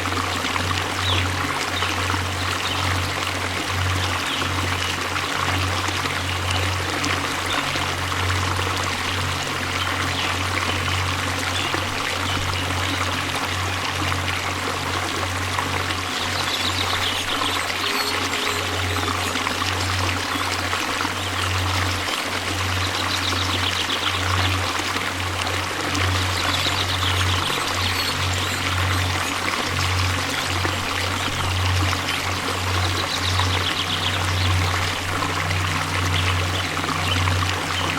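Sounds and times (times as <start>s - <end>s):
waterfall rushing water: 0.0s - 37.9s.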